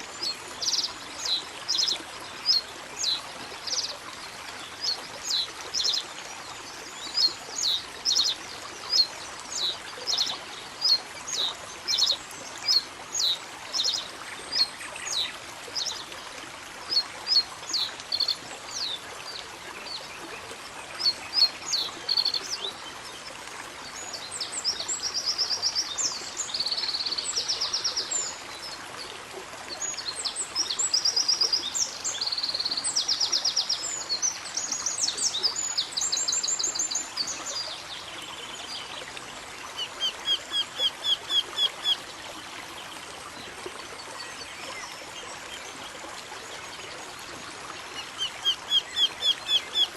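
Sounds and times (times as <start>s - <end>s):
songbirds calling: 0.0s - 16.1s, 16.9s - 19.1s, 21.0s - 23.2s, 29.8s - 42.0s, 47.9s - 49.9s
running water hiss: 0.0s - 49.9s.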